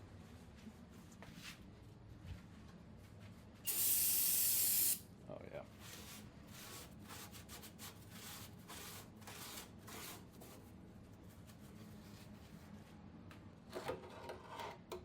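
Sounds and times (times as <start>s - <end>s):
scraping and rubbing on metal: 13.7s - 14.9s.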